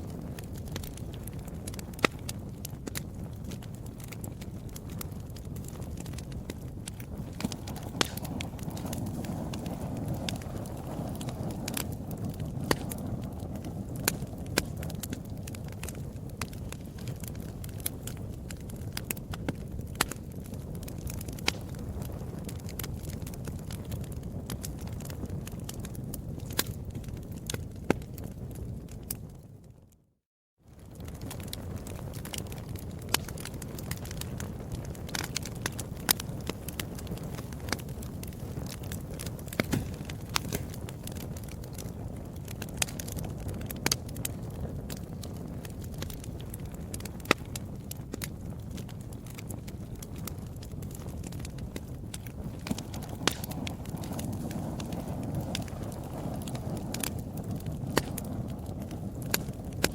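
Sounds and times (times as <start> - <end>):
wood fire crackling: 0.0 - 30.0, 30.7 - 59.9
low rumble of burning: 0.0 - 59.9
sharp pops and snaps: 5.4 - 9.7, 12.6 - 13.0, 38.6 - 41.8, 52.2 - 55.7, 57.9 - 58.3.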